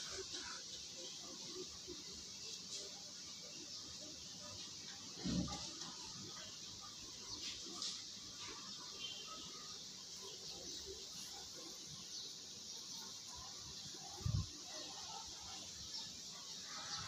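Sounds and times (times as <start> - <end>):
faint bird chirps: 0.0 - 17.0
steady outdoor hiss: 0.0 - 17.0.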